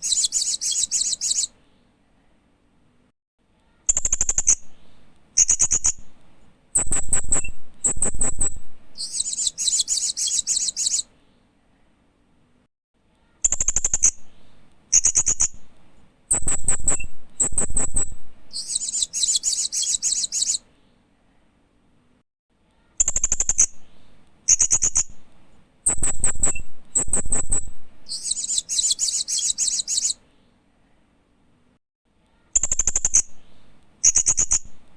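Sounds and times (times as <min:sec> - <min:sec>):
parrot chirping: 0:00.0 - 0:01.5, 0:06.8 - 0:11.1, 0:16.3 - 0:20.6, 0:24.5 - 0:25.2, 0:25.9 - 0:30.2.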